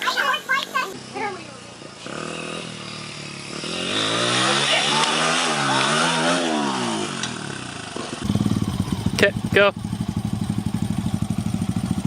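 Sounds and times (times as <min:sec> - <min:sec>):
motorcycle engine revving: 0:01.0 - 0:12.0.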